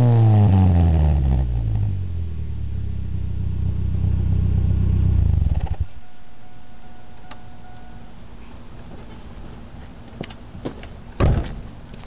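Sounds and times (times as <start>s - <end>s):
car engine idling: 1.4s - 8.0s
thump: 11.2s - 11.6s.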